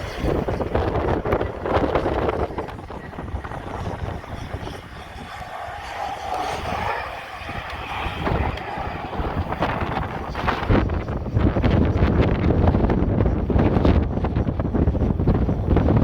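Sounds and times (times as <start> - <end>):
airplane engine droning: 0.0 - 16.0
wind on microphone: 0.0 - 16.0.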